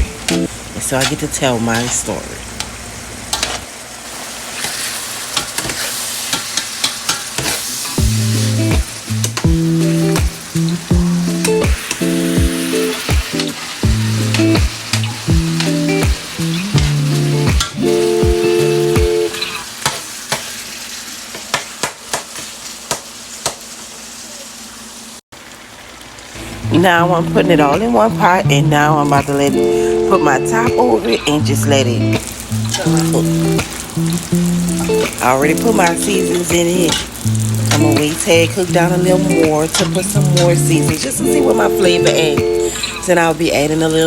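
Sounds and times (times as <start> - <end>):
food sizzling in a pan: 0.0 - 44.0.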